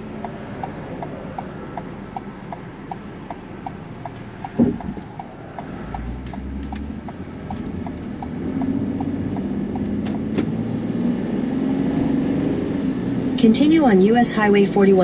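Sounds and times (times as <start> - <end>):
turn signal clicking: 0.0 - 11.2
road noise: 0.0 - 15.0
van engine: 0.0 - 15.0.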